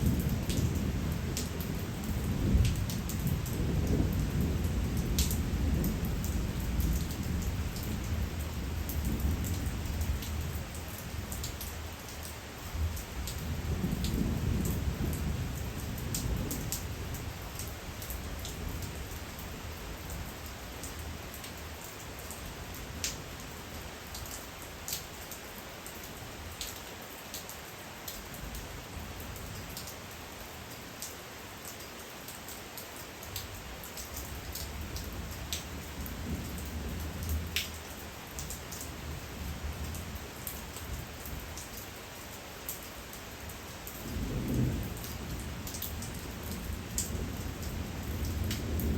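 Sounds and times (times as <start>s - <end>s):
distant thunder rumbles: 0.0s - 11.4s
rain drops tapping: 0.0s - 48.9s.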